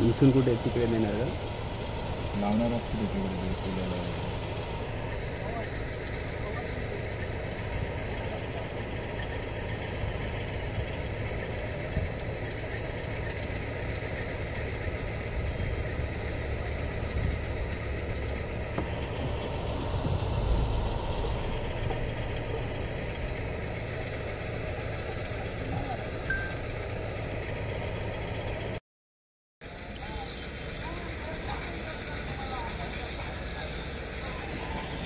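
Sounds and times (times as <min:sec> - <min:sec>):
car engine idling: 0:00.0 - 0:28.8, 0:29.6 - 0:35.0.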